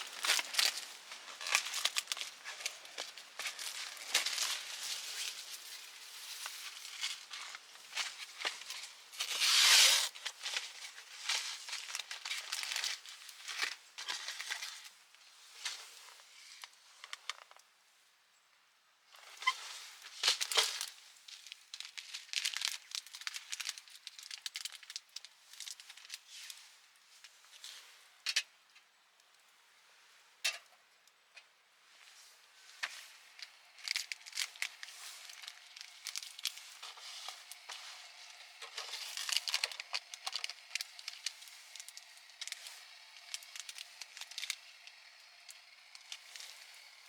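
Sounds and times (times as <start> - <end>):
plastic packaging crinkling: 0.0 - 14.9, 20.2 - 26.2, 32.8 - 47.0.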